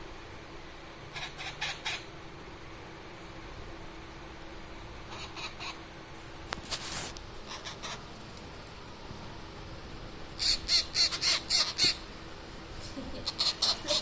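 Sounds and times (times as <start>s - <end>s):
parrot chicks squawking: 1.1s - 2.1s, 5.1s - 5.9s, 7.4s - 8.1s, 10.4s - 12.1s, 13.2s - 14.0s.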